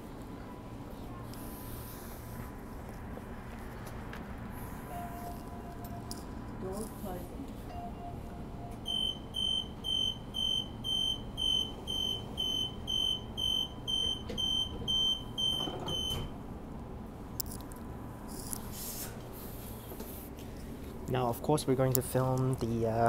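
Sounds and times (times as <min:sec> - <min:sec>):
train door warning beeps: 0:04.9 - 0:06.2, 0:07.7 - 0:16.4.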